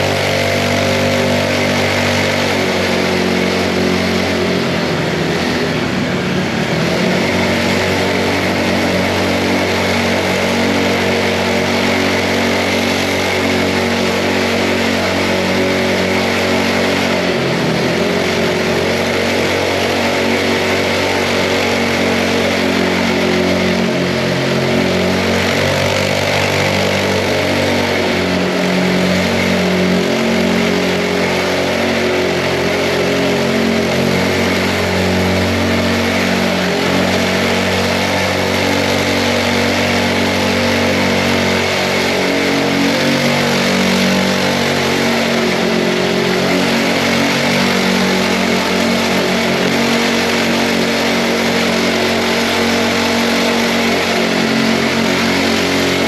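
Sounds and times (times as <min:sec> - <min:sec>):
mini bike engine running: 0:00.0 - 0:56.0.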